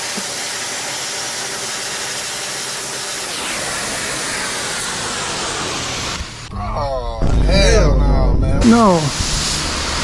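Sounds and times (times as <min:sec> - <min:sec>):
pressure washer spraying water: 0:00.0 - 0:06.5, 0:08.6 - 0:10.0.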